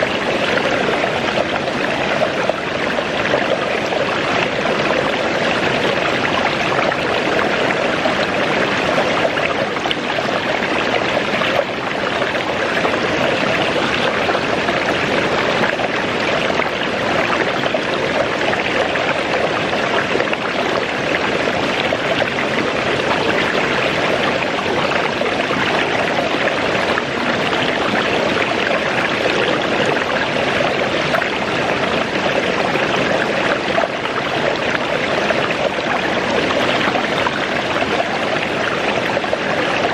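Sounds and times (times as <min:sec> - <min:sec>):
waterfall rushing water: 0:00.0 - 0:39.9.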